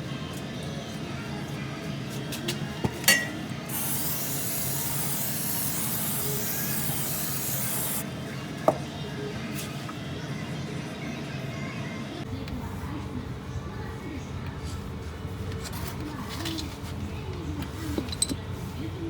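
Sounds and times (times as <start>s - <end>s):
spraying hiss: 3.7s - 8.0s.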